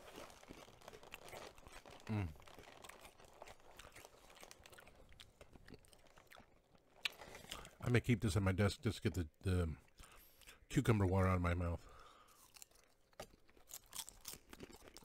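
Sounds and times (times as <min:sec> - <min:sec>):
crunching crackers: 0:00.0 - 0:07.9, 0:11.9 - 0:15.0.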